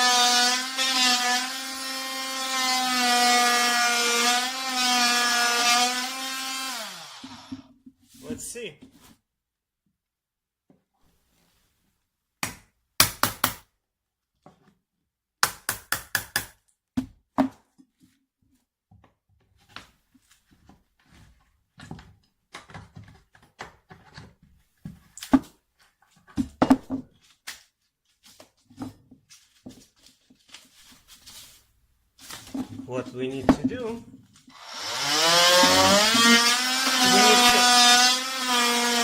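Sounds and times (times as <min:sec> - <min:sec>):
sharp knocks: 0:13.0 - 0:13.6.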